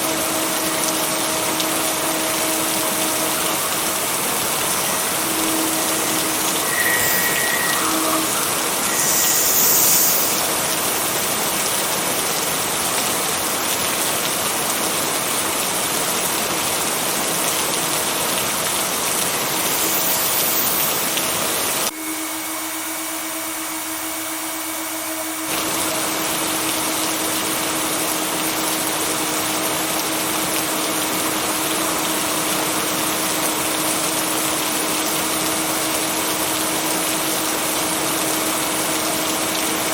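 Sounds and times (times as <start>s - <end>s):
heavy rain: 0.0s - 21.9s, 25.5s - 39.9s
faint low tone: 5.0s - 10.6s.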